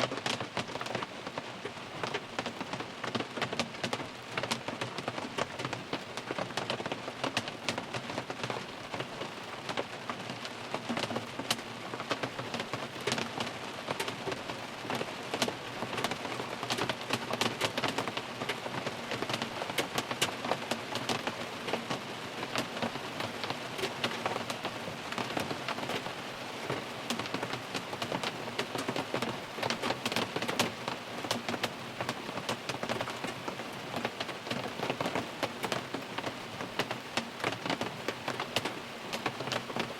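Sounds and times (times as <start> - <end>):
rain on car roof: 0.0 - 39.9
sharp raindrops striking: 0.1 - 39.9.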